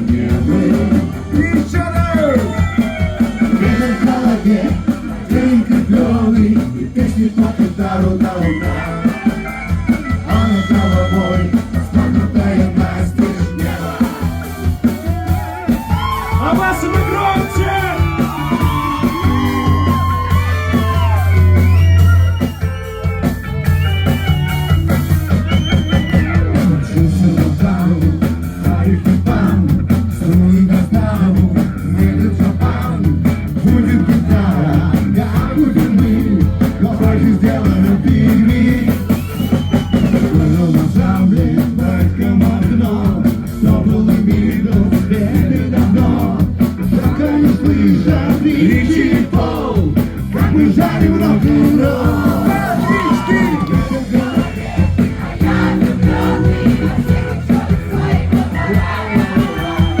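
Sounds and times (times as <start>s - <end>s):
drum kit beat: 0.0s - 60.0s
electric guitar playing: 8.5s - 11.8s, 16.2s - 28.6s.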